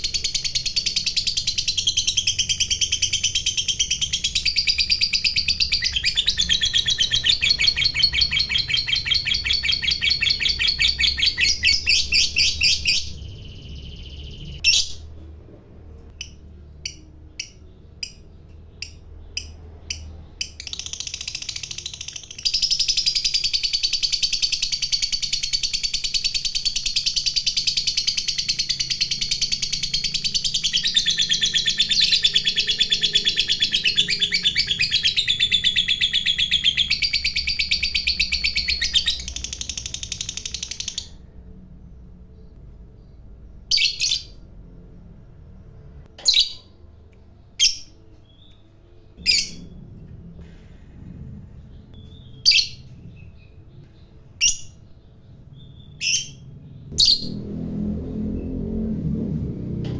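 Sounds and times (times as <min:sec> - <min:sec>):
bird chattering trill: 0:00.0 - 0:15.0
sharp bird chirps: 0:00.0 - 0:15.2, 0:16.1 - 0:46.8.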